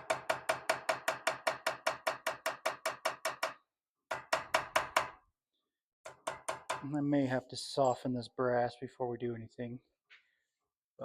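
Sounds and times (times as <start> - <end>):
hammer tapping a chisel on metal: 6.1 - 7.0.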